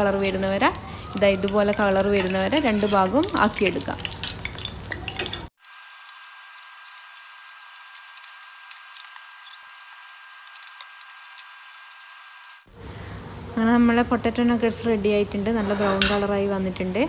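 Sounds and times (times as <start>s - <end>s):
food frying in hot oil: 0.0s - 12.7s.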